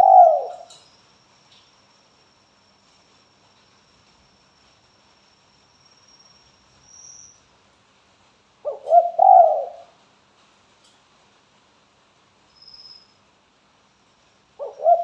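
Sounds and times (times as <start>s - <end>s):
dove cooing: 0.0s - 0.8s, 8.6s - 10.0s, 14.6s - 15.0s.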